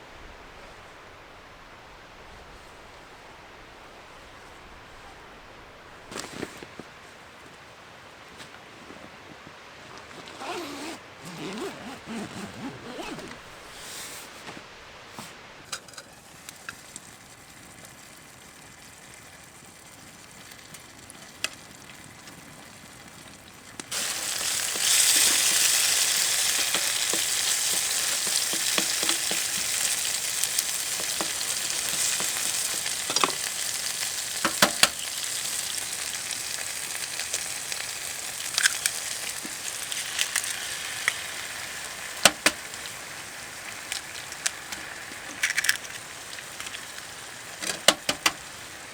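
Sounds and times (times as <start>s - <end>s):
food sizzling in a pan: 23.9s - 48.9s.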